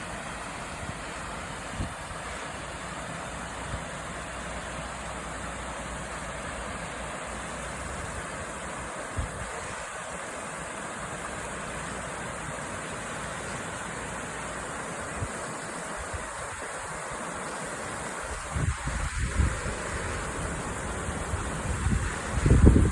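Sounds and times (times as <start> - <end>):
river water flowing: 0.0 - 22.9
wind bumps on microphone: 18.3 - 19.8, 21.5 - 22.9.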